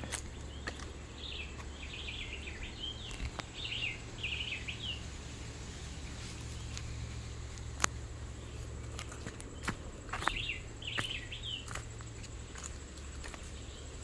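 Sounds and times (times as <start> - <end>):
bird singing chirps and trills: 0.0 - 14.0
steady low rumble: 0.0 - 14.0
light clicks: 6.6 - 8.0.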